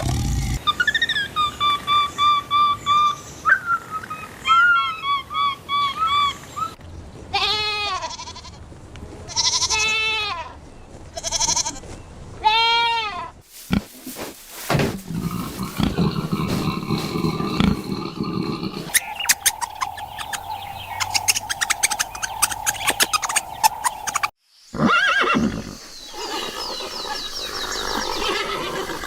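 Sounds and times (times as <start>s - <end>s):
livestock bleating: 12.4s - 17.8s.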